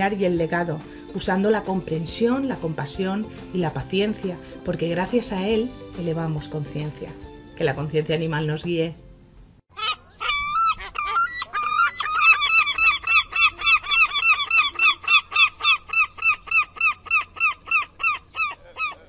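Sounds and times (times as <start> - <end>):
bird calling repeated short notes: 9.7 - 19.0.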